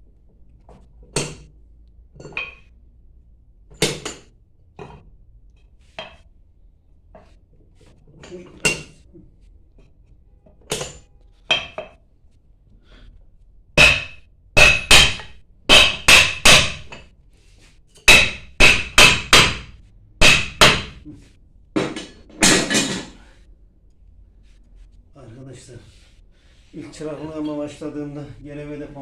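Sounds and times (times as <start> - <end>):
hammer striking metal: 13.8 - 17.0, 18.0 - 21.0.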